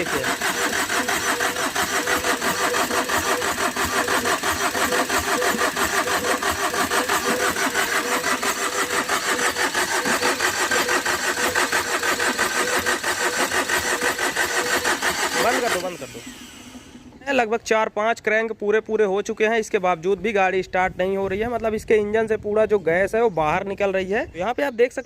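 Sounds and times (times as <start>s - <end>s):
engine cranking without starting: 0.0s - 17.5s.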